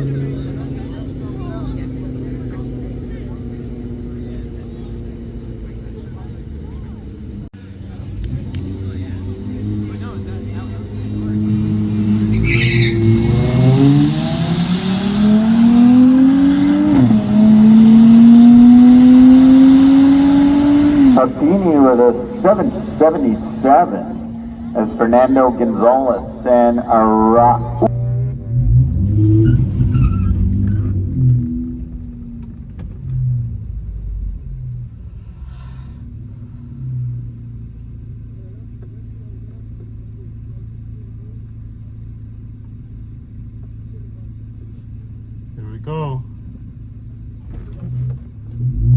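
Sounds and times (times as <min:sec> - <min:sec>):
car engine at full throttle: 0:00.0 - 0:48.9
brief high screech: 0:12.3 - 0:13.1.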